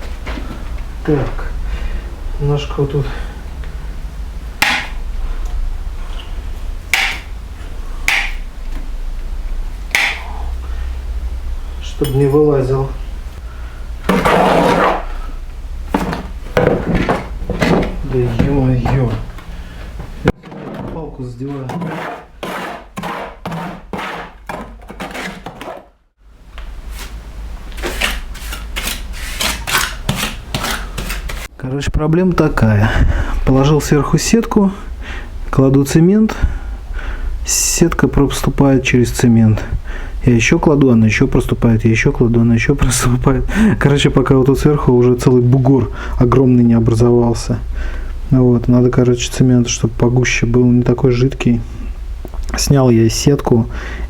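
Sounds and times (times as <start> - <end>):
low hum: 0.0 - 21.4
steady low hum: 0.0 - 23.1, 30.3 - 54.0
trowel scraping wet mortar: 14.1 - 15.1, 21.4 - 25.8, 27.8 - 31.5.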